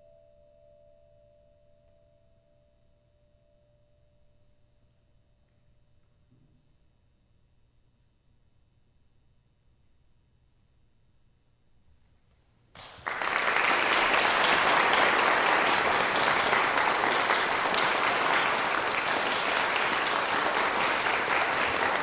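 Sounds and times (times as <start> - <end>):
audience applause: 12.8 - 22.0.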